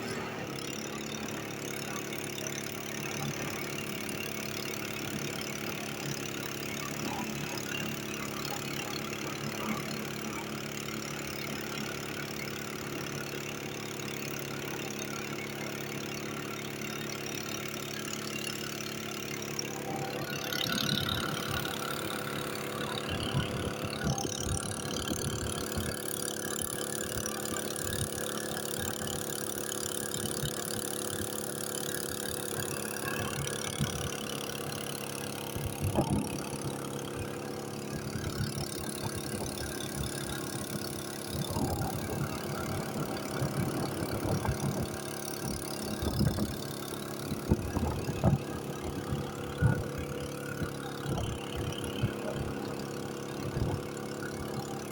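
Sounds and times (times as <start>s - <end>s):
engine running steadily: 0.0s - 54.9s.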